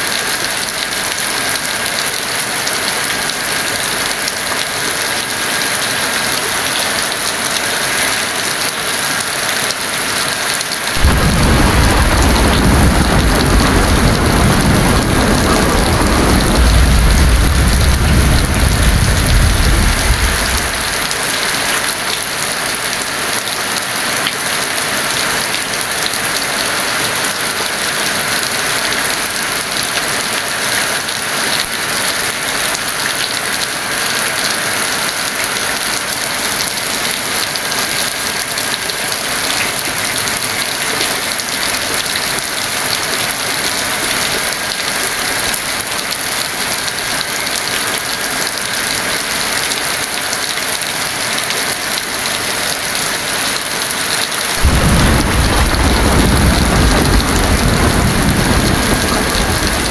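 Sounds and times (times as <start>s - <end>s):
heavy rain: 0.0s - 59.9s
thunder rolling: 11.0s - 21.3s, 54.6s - 59.9s.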